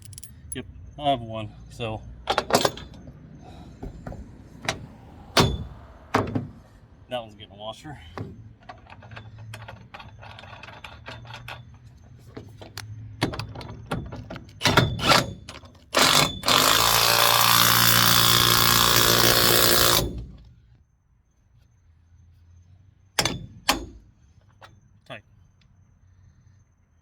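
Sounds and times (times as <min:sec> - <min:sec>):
nut and washer clicking: 0:00.0 - 0:00.6
impact wrench running: 0:16.0 - 0:20.3.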